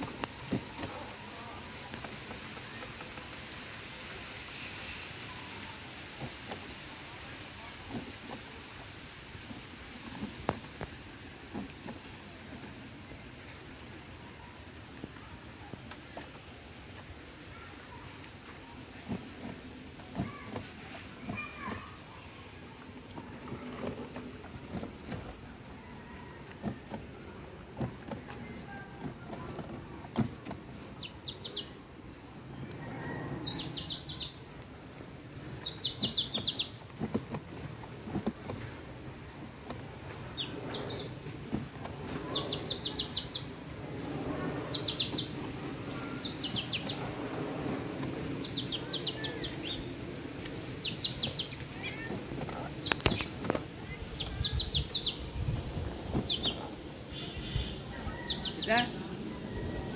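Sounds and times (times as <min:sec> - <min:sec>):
songbird singing: 0:11.6 - 0:47.2, 0:47.9 - 0:59.9.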